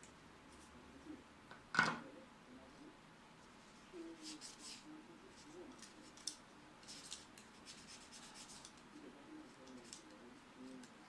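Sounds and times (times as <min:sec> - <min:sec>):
scratching and rubbing strokes: 0:03.4 - 0:11.0.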